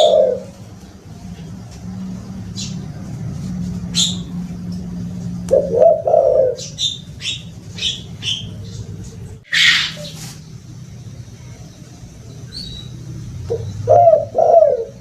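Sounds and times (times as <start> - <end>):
dove cooing: 0.0 - 0.6, 5.4 - 10.3, 13.4 - 15.0
small birds chirping: 0.0 - 15.0
steady low hum: 0.0 - 15.0.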